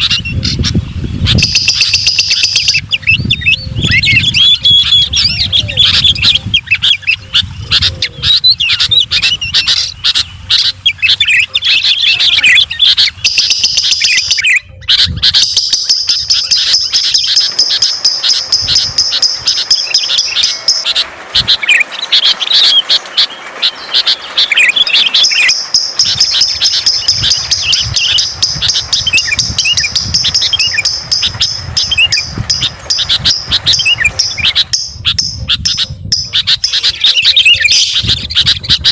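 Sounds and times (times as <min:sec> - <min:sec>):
birds chirping: 0:00.0 - 0:38.9
high-pitched buzz: 0:15.4 - 0:36.3.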